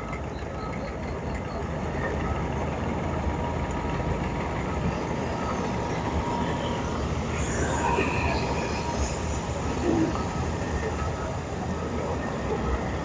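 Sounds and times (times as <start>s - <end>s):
faint thin metallic whine: 4.5s - 13.0s.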